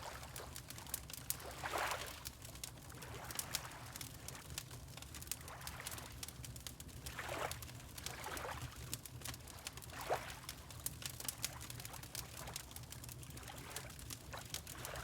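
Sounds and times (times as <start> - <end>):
wood fire crackling: 0.0 - 1.5, 2.2 - 5.4, 10.5 - 15.0.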